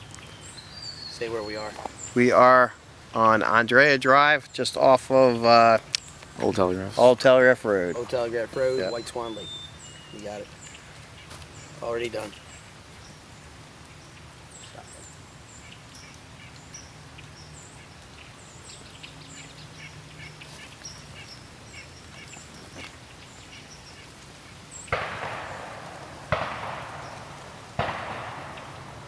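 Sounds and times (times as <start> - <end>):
small birds chirping: 0.0 - 29.0
distant shotgun blasts echoing: 24.9 - 29.0.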